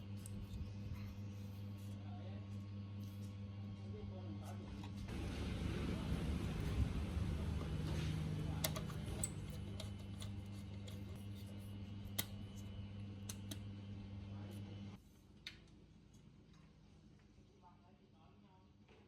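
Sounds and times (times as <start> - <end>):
electric motor humming: 5.0 - 14.9.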